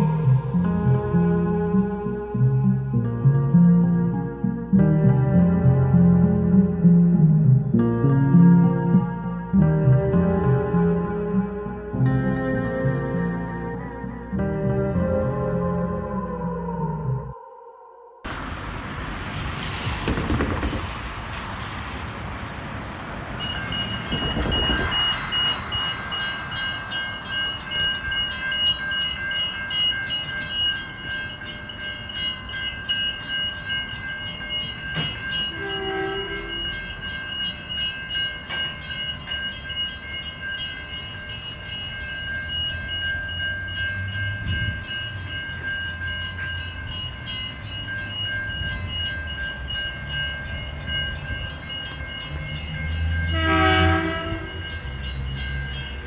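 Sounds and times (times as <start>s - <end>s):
train rumble: 18.3s - 56.0s
level crossing warning bell: 23.1s - 56.0s.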